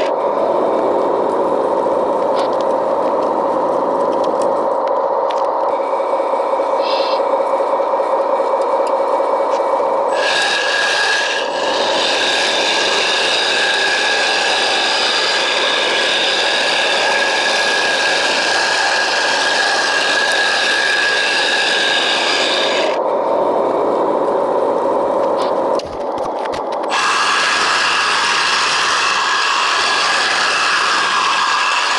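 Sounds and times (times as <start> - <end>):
high motor whine: 0.0 - 31.9
gritty rasping and scraping: 8.8 - 23.0, 25.4 - 31.9.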